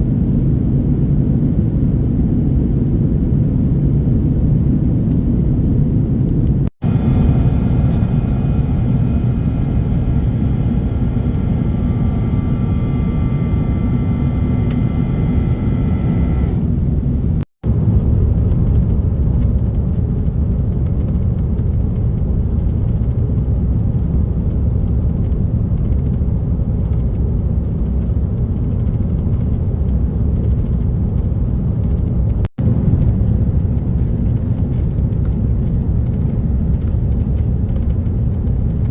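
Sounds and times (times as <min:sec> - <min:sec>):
high steady whine: 0:00.0 - 0:21.2
airplane cabin engine rumble: 0:00.0 - 0:38.9.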